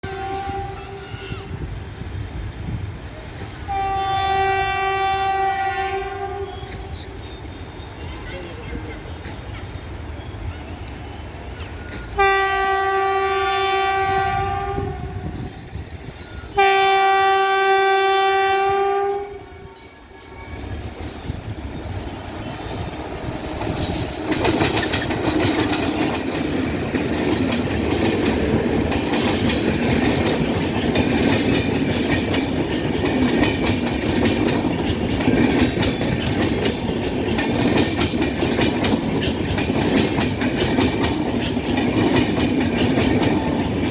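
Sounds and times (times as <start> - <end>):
train horn blasts: 0.0 - 1.2, 3.6 - 7.0, 12.1 - 15.7, 16.4 - 21.0
train wheels rumbling over rail joints: 0.0 - 43.9.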